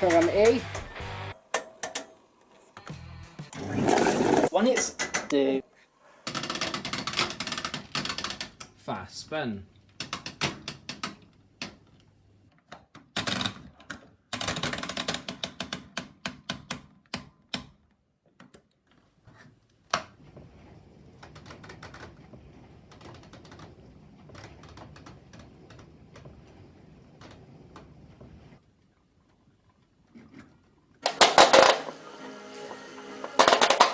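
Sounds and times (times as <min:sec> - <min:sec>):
faint steady noise with ticks: 0:21.2 - 0:29.9.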